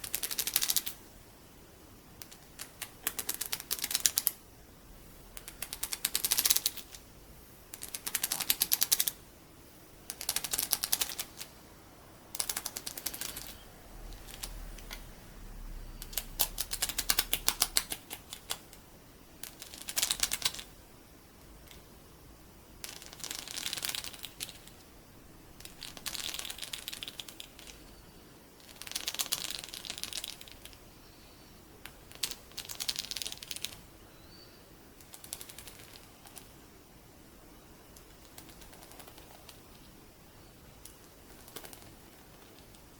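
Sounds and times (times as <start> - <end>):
beads scratched and tapped: 2.2 - 4.4, 5.3 - 7.0, 7.7 - 9.2, 10.1 - 11.6, 12.3 - 13.6, 19.4 - 20.7, 22.8 - 24.9, 25.6 - 27.9, 37.9 - 39.9
rapid clicking: 2.2 - 4.4, 5.1 - 7.0, 7.7 - 9.2, 10.0 - 20.8.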